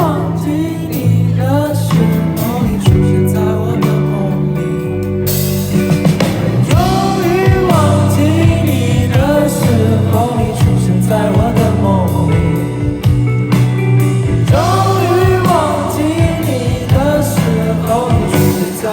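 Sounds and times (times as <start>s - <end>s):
bass guitar: 0.0s - 18.9s
drums: 0.0s - 18.9s
wordless wavering vocal: 6.6s - 13.2s, 14.3s - 18.9s.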